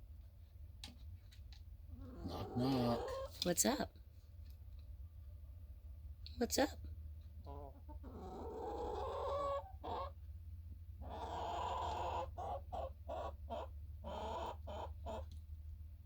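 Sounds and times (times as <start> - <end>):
hens clucking and calling: 1.9 - 3.8, 7.3 - 10.2, 11.0 - 15.4.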